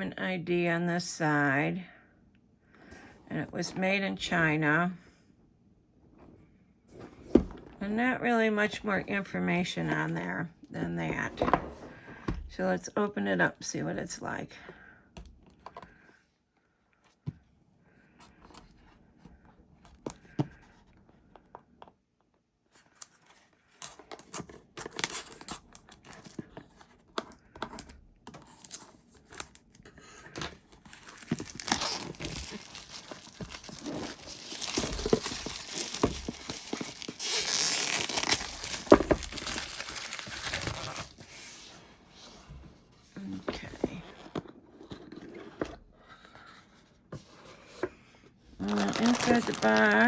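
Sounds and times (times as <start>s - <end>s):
plastic wrap tearing and crinkling: 24.2s - 26.4s, 30.7s - 41.3s, 48.6s - 50.0s.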